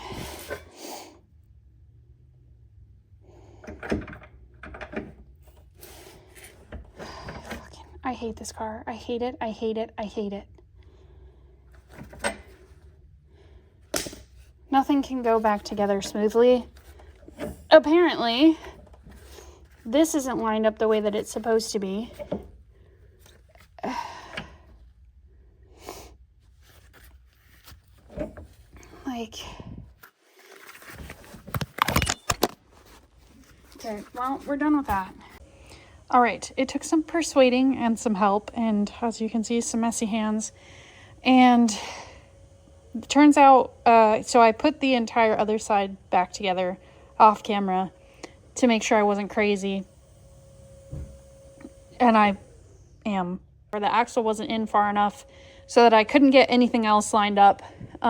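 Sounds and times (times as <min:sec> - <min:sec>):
metal parts knocking and clunking: 0:03.6 - 0:05.7, 0:11.8 - 0:12.7
rustling handling noise: 0:13.8 - 0:23.8, 0:26.3 - 0:35.5.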